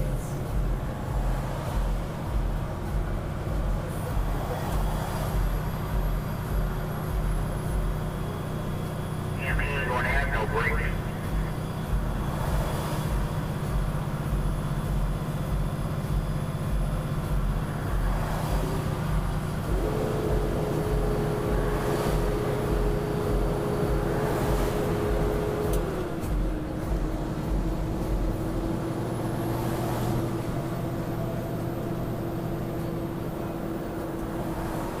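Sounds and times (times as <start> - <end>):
vehicle engine and road rumble: 0.0 - 35.0
steady whine: 9.4 - 12.3.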